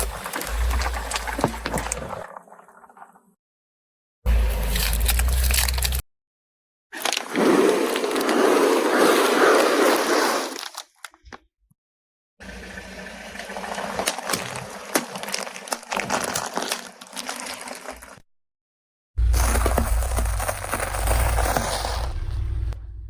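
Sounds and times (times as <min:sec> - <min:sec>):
objects crunching under car tyre: 0:00.0 - 0:02.7, 0:04.3 - 0:06.0, 0:07.0 - 0:11.0, 0:13.9 - 0:18.2, 0:19.2 - 0:22.7
crackles and snaps: 0:04.5 - 0:06.0, 0:14.0 - 0:18.2, 0:19.2 - 0:22.2.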